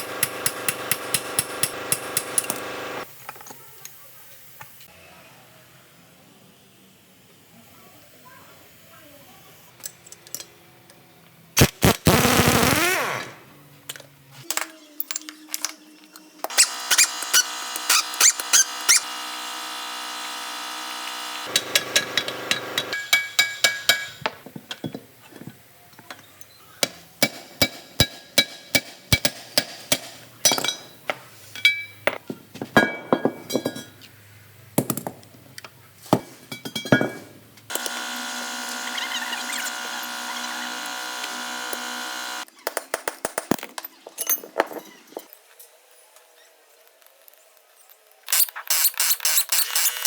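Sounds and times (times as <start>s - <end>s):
metal parts and tools clinking: 13.9s - 18.6s.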